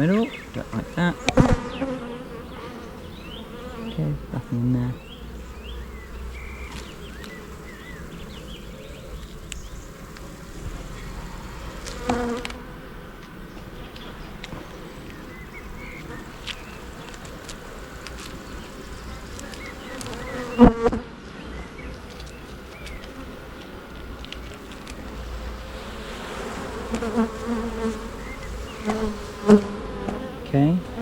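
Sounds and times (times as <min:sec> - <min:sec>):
honey bees humming: 0:00.0 - 0:31.0.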